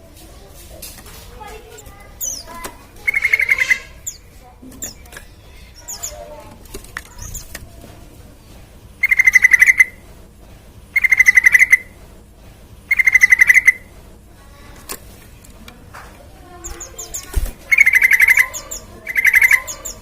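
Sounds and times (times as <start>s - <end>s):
bird trilling: 1.7s - 6.4s, 9.0s - 10.0s, 11.0s - 12.0s, 12.9s - 13.9s, 16.5s - 20.0s.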